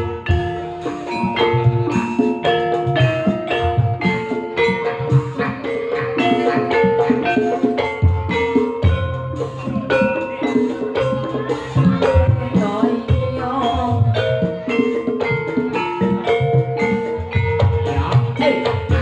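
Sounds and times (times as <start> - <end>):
drums: 0.0 - 19.0
held melodic notes: 0.0 - 19.0
struck pitched instruments: 0.0 - 19.0.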